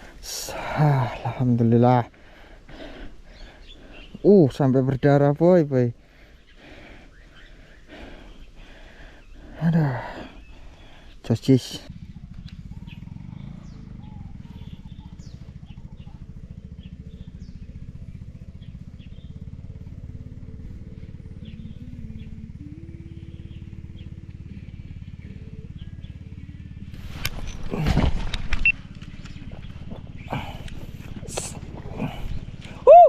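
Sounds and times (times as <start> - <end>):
small engine rumbling: 0.0 - 33.0
faint chirps: 6.3 - 27.9.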